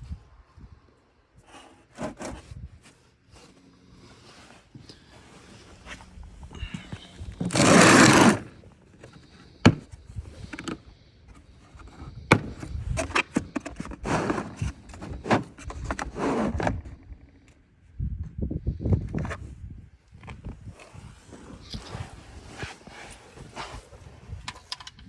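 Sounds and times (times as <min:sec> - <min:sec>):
short scrapes and knocks: 0:01.6 - 0:02.6, 0:06.7 - 0:16.9
loud scrape: 0:07.2 - 0:08.6, 0:14.0 - 0:16.8.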